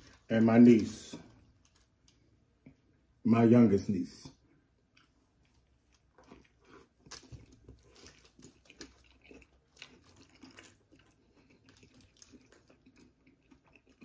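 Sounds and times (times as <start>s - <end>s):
wet chewing: 4.9s - 14.0s.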